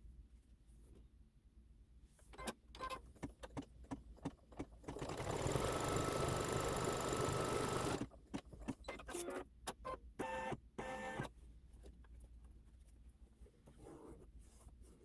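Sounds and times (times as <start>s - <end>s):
embroidery machine stitching: 4.8s - 8.1s.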